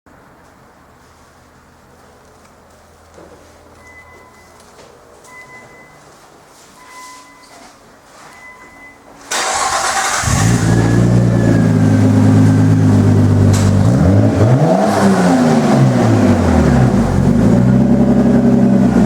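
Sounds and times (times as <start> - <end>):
faint beeps: 3.7 - 9.3
car engine starting and idling: 9.2 - 19.0
engine revving: 9.4 - 19.0.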